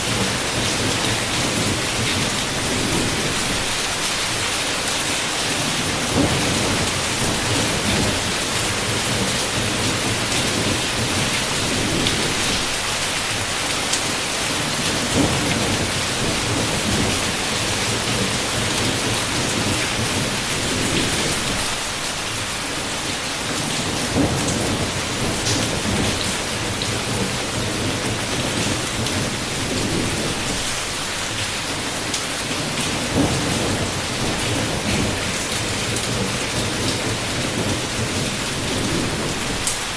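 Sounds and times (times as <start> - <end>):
low thunder rumbling: 0.0 - 3.8, 5.6 - 12.8, 14.6 - 21.8, 23.8 - 31.0, 32.6 - 39.9
heavy rain on a window: 0.0 - 39.9.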